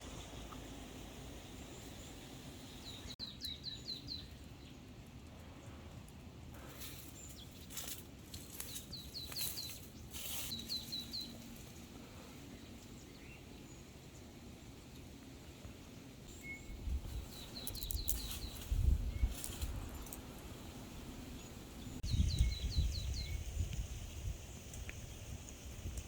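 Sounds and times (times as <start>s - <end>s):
low outdoor hiss: 0.0s - 26.0s
small bird chirping: 1.4s - 4.9s, 6.8s - 14.2s, 16.3s - 25.8s.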